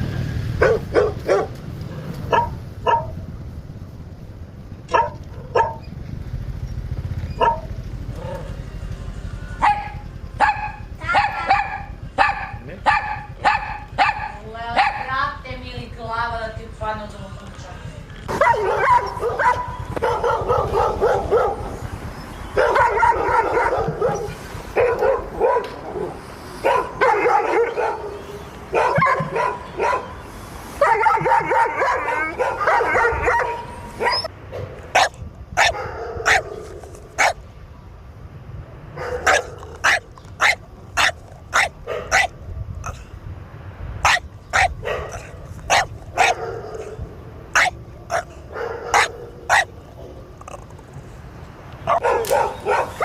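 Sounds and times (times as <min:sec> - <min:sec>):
dogs barking and yapping: 0:00.4 - 0:04.0, 0:04.7 - 0:09.0, 0:09.6 - 0:15.2, 0:18.2 - 0:37.5, 0:38.8 - 0:43.2, 0:44.0 - 0:53.0.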